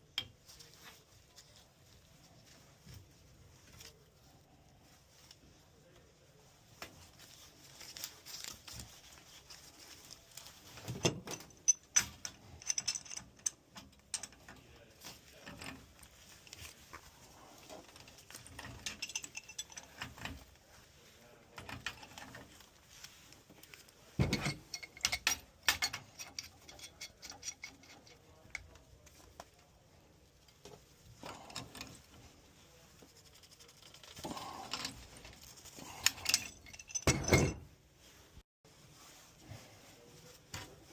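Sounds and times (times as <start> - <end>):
metal pipe fittings clinking: 10.8 - 16.8, 17.6 - 20.6, 24.2 - 28.8, 34.0 - 37.8.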